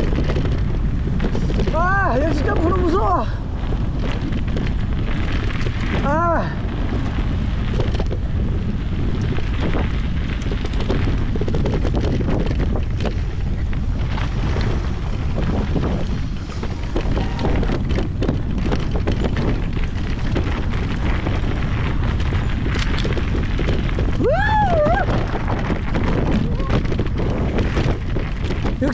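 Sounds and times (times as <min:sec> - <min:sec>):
bike tyres crunching on rough ground: 0:00.0 - 0:28.9
wind on microphone: 0:00.0 - 0:28.9.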